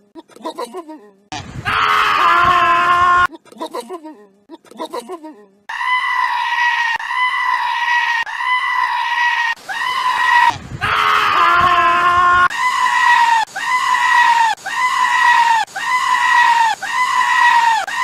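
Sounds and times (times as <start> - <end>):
goat screaming: 5.7 - 18.0.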